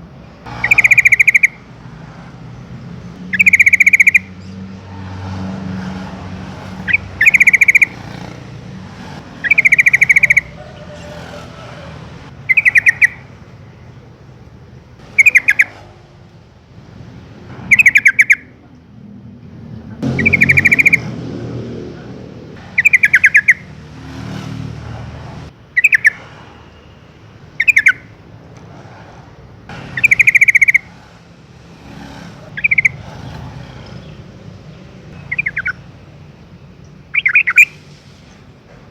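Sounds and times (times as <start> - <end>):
bird calling in bubbly phrases: 0.6 - 1.6, 6.8 - 8.2, 9.4 - 11.1, 12.5 - 13.2, 15.1 - 15.8, 25.8 - 26.2, 35.2 - 35.8.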